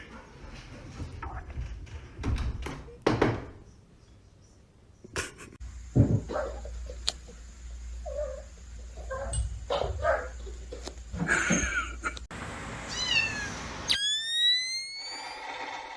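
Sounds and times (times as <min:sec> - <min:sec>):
cat meowing: 0:12.9 - 0:14.1.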